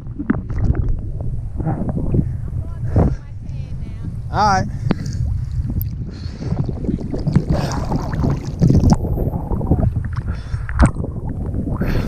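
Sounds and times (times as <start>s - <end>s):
low rumble of water and wind: 0.0s - 12.0s
sea water splashing: 4.3s - 12.0s.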